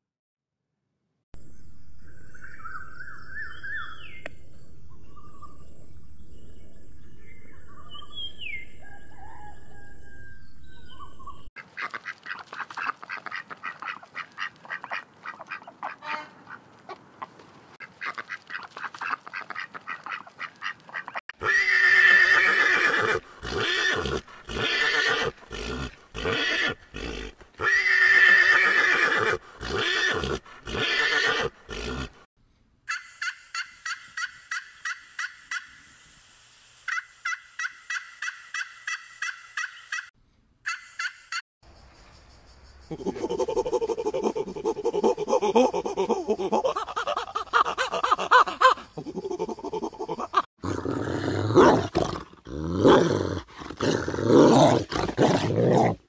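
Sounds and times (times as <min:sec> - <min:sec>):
mule braying: 0:21.4 - 0:32.2
turkey gobbling: 0:32.9 - 0:35.8, 0:36.9 - 0:40.1, 0:40.7 - 0:41.3.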